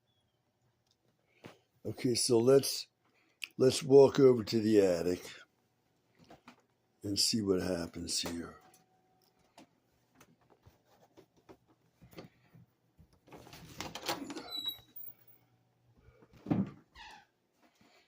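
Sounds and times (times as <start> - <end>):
door opening: 13.3 - 15.2.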